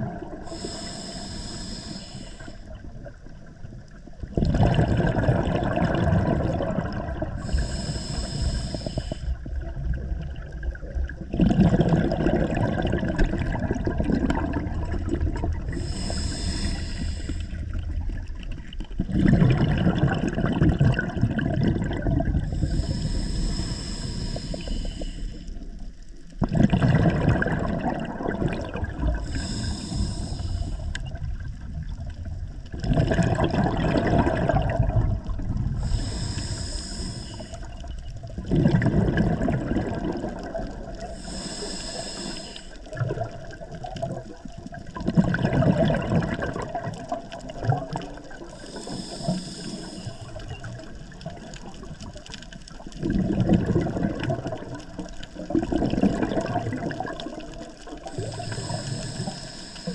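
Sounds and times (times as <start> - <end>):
exhaled bubbles rushing: 0.0 - 0.6, 2.7 - 7.8, 9.3 - 16.5, 17.3 - 23.0, 26.4 - 36.2, 37.4 - 41.2, 42.8 - 49.0, 49.6 - 59.4
regulator hiss on inhale: 0.4 - 2.8, 7.4 - 9.5, 15.7 - 17.9, 22.4 - 26.2, 29.0 - 31.1, 35.6 - 38.0, 40.3 - 42.9, 48.2 - 50.7, 57.3 - 59.9.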